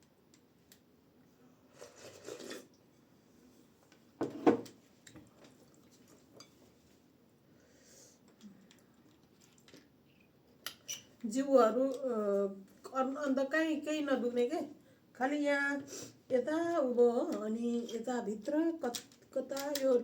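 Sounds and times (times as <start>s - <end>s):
fork scraping on a plate: 1.8s - 2.7s.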